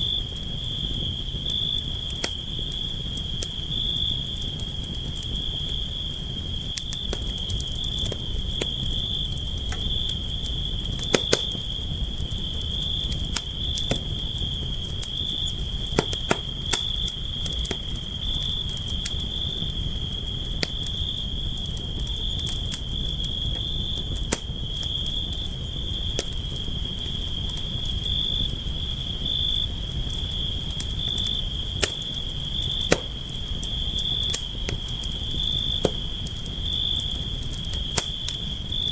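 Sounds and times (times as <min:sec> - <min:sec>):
campfire crackling and popping: 0:00.0 - 0:38.9
crickets trilling: 0:00.0 - 0:38.9.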